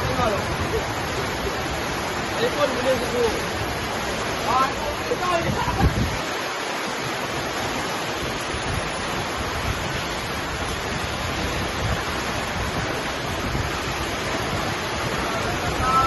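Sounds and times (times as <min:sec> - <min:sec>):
heavy rain: 0:00.0 - 0:16.0
storm wind rushing: 0:00.0 - 0:16.0
wind gusts on microphone: 0:00.0 - 0:16.0.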